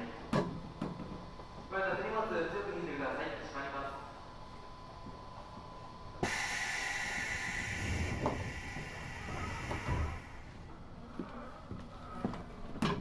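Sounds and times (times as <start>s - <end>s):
pneumatic doors hissing: 6.2s - 10.7s.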